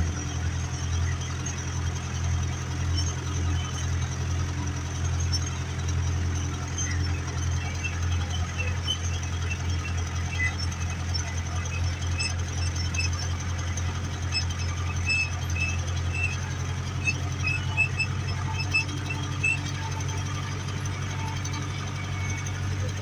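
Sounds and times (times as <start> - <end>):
tractor diesel engine running: 0.0 - 23.0
faint high chirps: 6.3 - 23.0.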